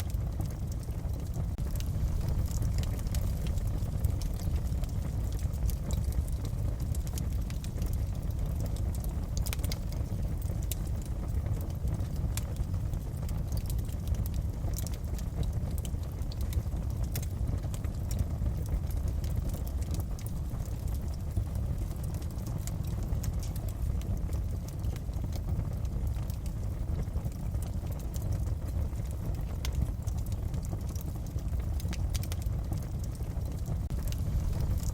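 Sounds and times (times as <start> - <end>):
low rush of burning fire: 0.0 - 34.9
wood fire crackling and popping: 0.0 - 34.9.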